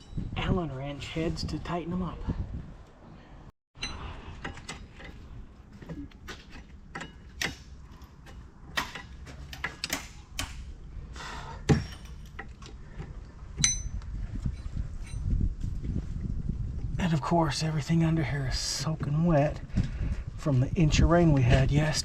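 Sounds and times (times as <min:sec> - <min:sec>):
metal tools clicking and knocking: 0:03.8 - 0:10.5, 0:11.7 - 0:15.3
ringing metallic clinks: 0:13.6 - 0:14.0.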